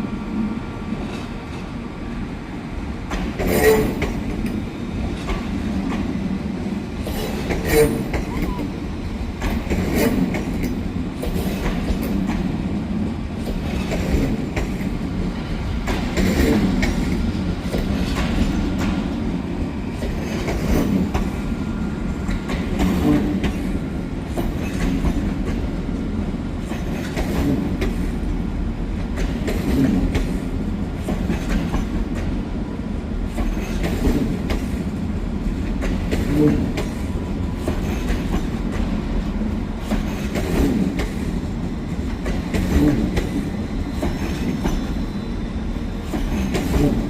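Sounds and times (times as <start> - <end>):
train rumbling past: 0.0 - 47.0
wheels clattering over rail joints: 22.3 - 25.6, 35.6 - 38.9.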